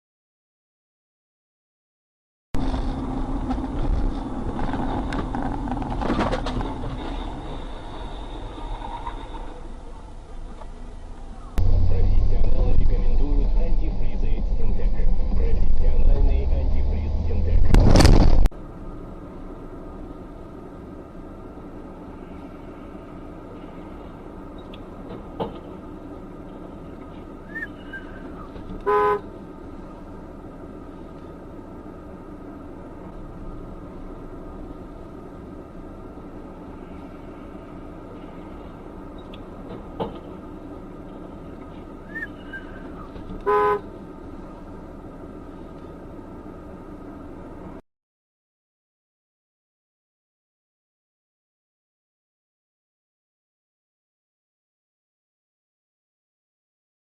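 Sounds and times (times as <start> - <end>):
traffic hum: 2.6 - 47.8
vehicle low rumble: 2.6 - 47.8
car horn beep: 28.8 - 29.3, 43.4 - 43.9.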